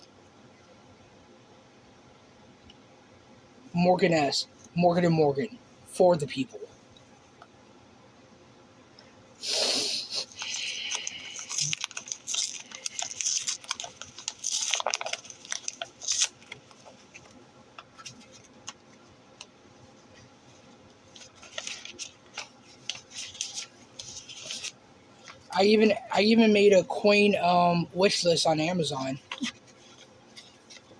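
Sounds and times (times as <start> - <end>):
packaging rustling and tearing: 10.1 - 18.9, 21.0 - 25.5.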